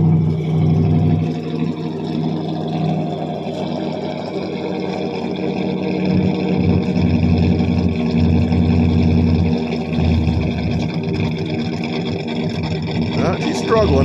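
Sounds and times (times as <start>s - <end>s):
car engine rough idle: 0.0s - 14.0s.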